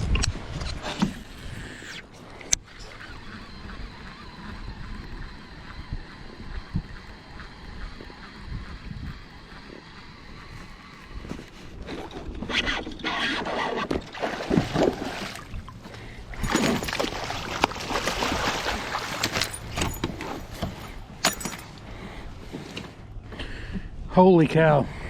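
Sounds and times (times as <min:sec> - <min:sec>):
water splashing: 0:14.0 - 0:20.5.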